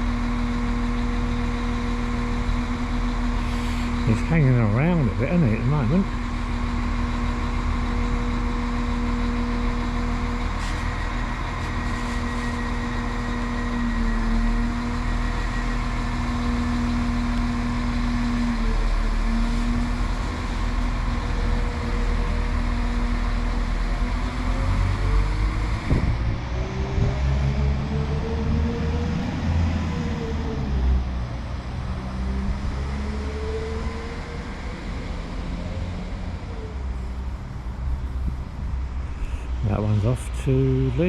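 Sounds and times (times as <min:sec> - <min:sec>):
diesel train engine idling: 0:00.0 - 0:41.0.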